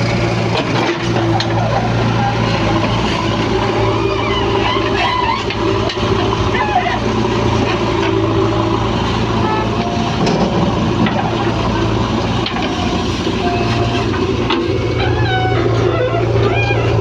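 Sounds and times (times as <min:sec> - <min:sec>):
heavy diesel engine running: 0:00.0 - 0:17.0.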